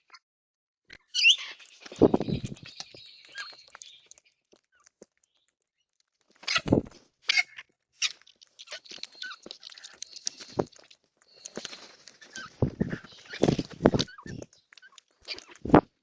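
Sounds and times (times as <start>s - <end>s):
harsh bird calls: 0.9s - 4.2s, 6.4s - 15.7s.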